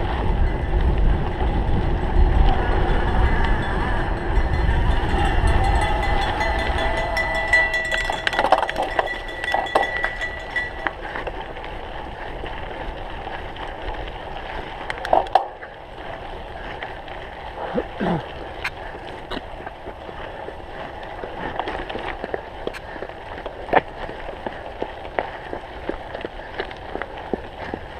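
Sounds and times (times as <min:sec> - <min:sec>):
bike rattling over rough ground: 0:00.0 - 0:27.9
chain and frame clicking: 0:05.6 - 0:11.2.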